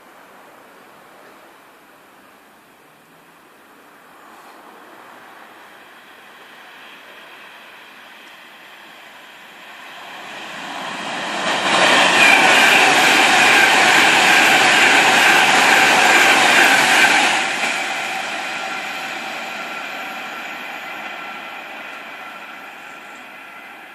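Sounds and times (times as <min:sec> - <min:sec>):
train passing at speed: 0:03.9 - 0:23.9.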